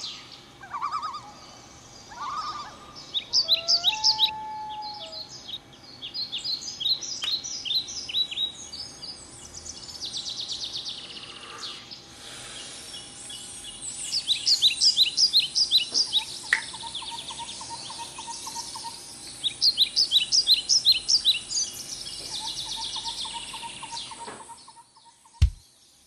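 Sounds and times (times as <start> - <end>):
birds singing: 0.0 - 26.0
sharp click: 25.4 - 25.6.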